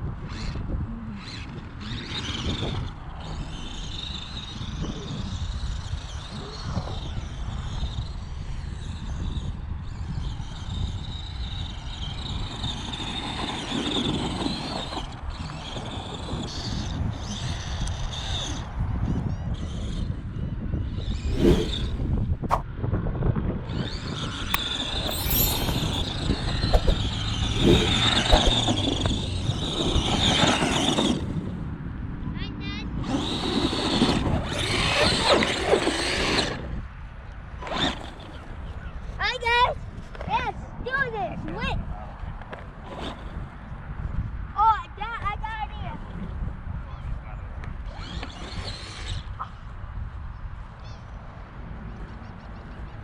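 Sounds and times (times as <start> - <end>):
electric motor whining: 24.4 - 31.5, 33.0 - 36.7
tyres scrabbling over ground: 24.6 - 31.4, 33.1 - 36.6.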